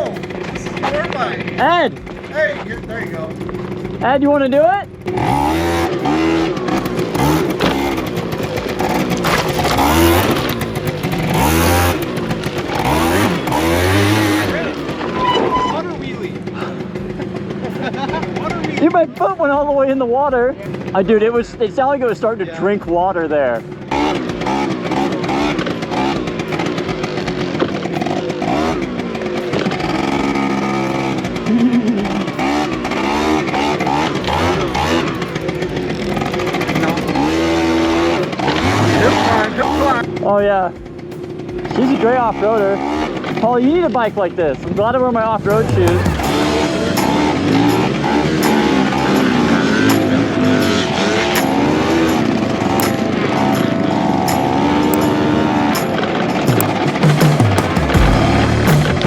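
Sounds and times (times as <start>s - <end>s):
rider talking: 0.0s - 5.0s, 14.0s - 17.0s, 17.8s - 23.7s, 36.4s - 40.8s, 41.6s - 46.8s
small motorcycle engine revving: 0.0s - 59.0s.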